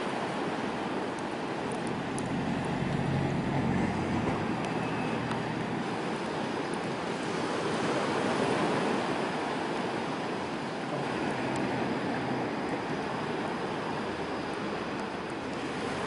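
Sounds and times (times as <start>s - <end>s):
sea waves washing ashore: 0.0s - 16.0s
campfire crackling: 1.0s - 7.0s.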